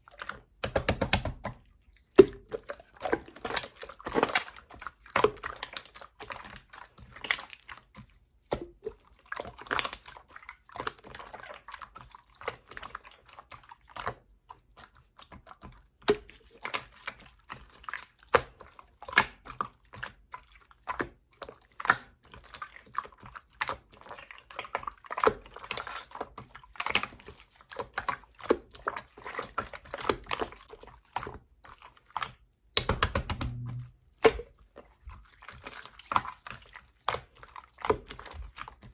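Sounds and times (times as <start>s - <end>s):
sticky clicks of squeezed slime: 0.2s - 1.6s, 32.2s - 34.5s.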